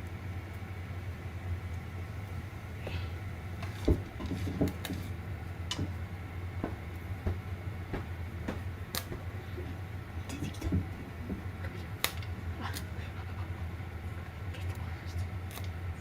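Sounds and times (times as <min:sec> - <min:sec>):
steady low hum: 0:00.0 - 0:16.0
popcorn kernels popping: 0:03.6 - 0:09.4, 0:10.4 - 0:12.3.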